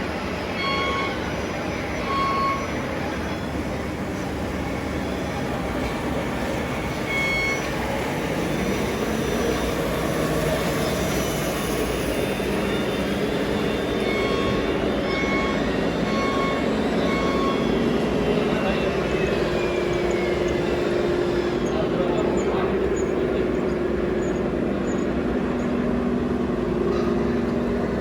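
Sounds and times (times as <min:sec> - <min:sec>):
short high beeps: 0:02.0 - 0:02.7, 0:07.1 - 0:07.7.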